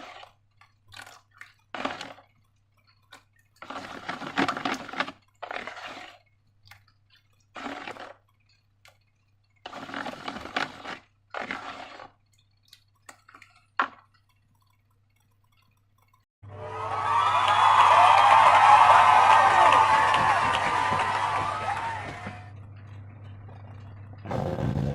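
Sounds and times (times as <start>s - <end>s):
liquid pouring: 0.0s - 16.2s
slime squelching: 0.0s - 16.2s
small clicks: 12.2s - 16.3s.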